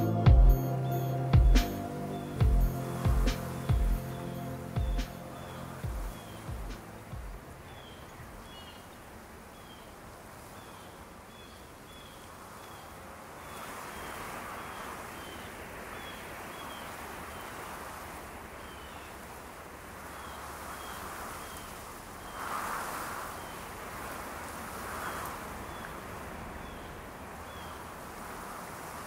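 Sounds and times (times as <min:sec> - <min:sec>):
soft rushing noise: 0:00.0 - 0:08.4, 0:19.3 - 0:29.0.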